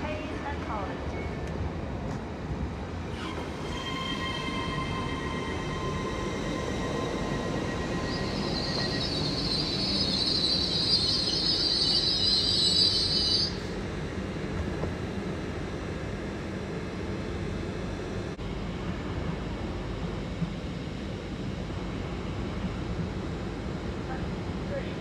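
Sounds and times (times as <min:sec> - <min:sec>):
train rumbling past: 0:00.0 - 0:16.3
train whine: 0:00.0 - 0:24.9
loud high-pitched squeal: 0:03.1 - 0:13.7.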